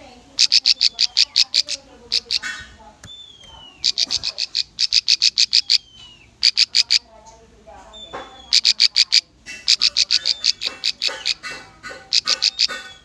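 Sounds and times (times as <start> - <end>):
bird rapid sharp repeated notes: 8.5 - 13.0.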